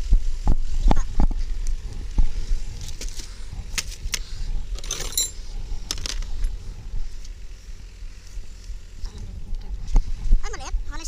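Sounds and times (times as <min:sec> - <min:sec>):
steady low hum: 0:00.0 - 0:11.0
metal tools clinking: 0:04.7 - 0:06.2.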